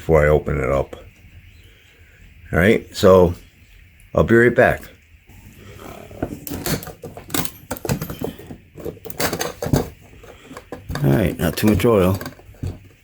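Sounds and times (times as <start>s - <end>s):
small hard objects clinking: 6.4s - 13.0s.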